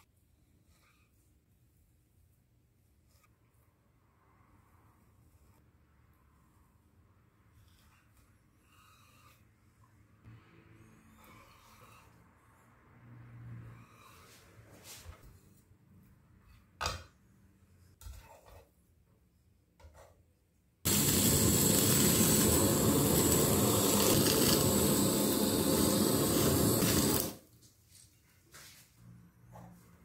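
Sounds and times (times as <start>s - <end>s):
blowtorch burning: 20.9s - 27.5s.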